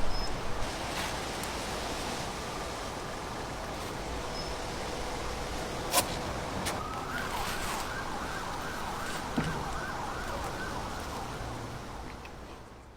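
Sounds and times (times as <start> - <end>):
emergency vehicle siren wailing: 6.6 - 11.9.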